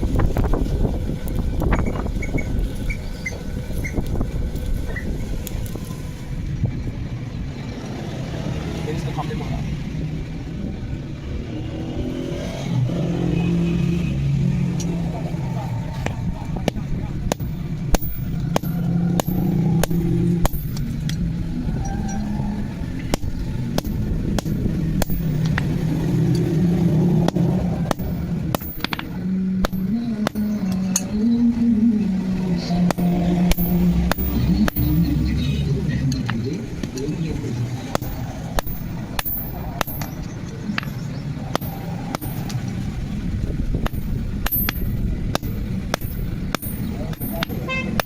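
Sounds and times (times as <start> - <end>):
low motor hum: 0.0 - 48.0
steady low rumble: 0.0 - 48.0
hammer striking metal: 16.6 - 21.3, 23.1 - 26.5, 27.2 - 31.1, 32.7 - 35.1, 37.8 - 42.9, 43.8 - 48.0
hammer blows on metal: 32.7 - 35.1.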